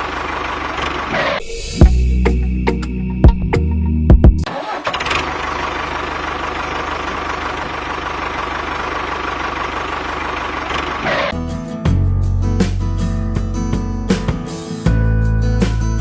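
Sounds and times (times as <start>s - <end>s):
small engine running steadily: 0.0s - 1.4s, 4.8s - 11.4s.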